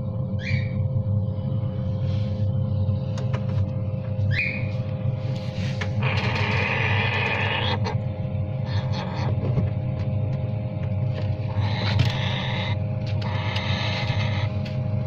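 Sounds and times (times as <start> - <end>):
steady low hum: 0.0 - 15.0
parrot chick squawking: 6.0 - 8.0, 11.5 - 14.5.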